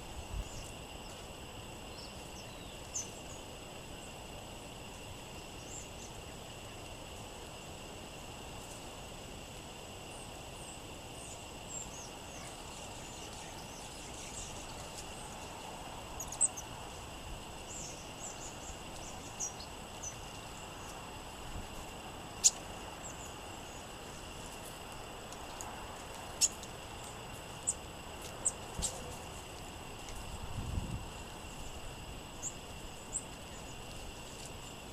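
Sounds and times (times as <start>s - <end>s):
songbirds chirping: 0.0s - 34.9s
low rush of wind: 29.7s - 34.8s.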